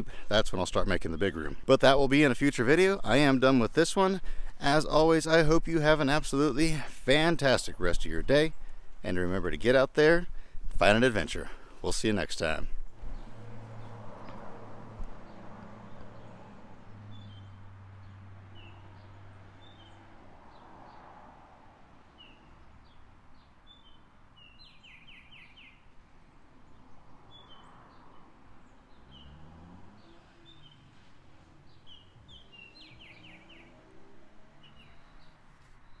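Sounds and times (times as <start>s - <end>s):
small birds chirping: 15.2s - 21.1s, 22.0s - 36.0s.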